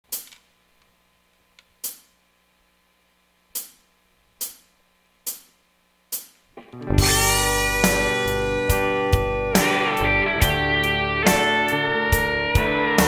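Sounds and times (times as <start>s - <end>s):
hi-hat strikes: 0.1s - 0.4s, 1.8s - 2.2s, 3.5s - 13.0s.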